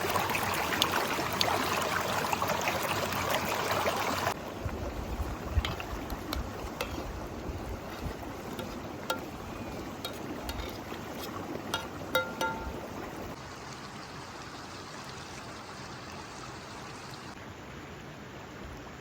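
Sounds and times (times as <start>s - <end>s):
stream water flowing: 0.0s - 19.0s
wind rumbling on microphone: 4.4s - 11.7s.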